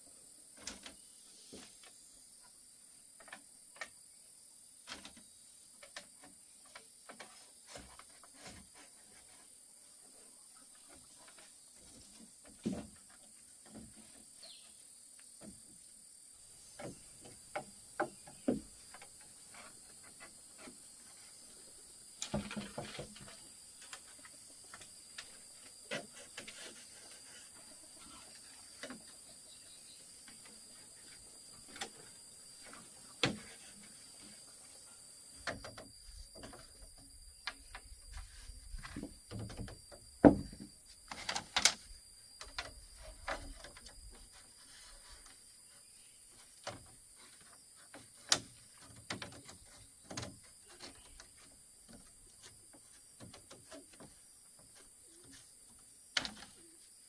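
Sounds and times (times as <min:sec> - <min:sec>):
faint high-pitched hiss: 0:00.0 - 0:57.0
irregular knocks and clicks: 0:46.6 - 0:55.4.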